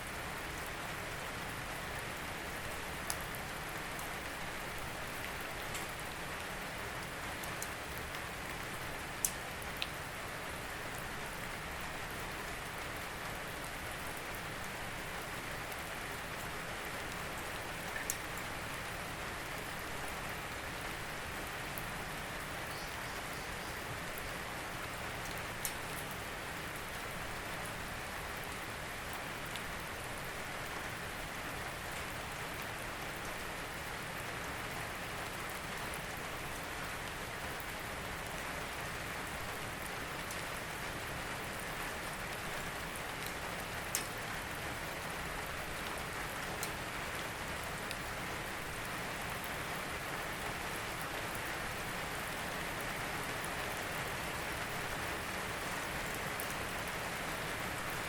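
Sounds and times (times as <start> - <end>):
rain hissing on a surface: 0.0 - 58.0.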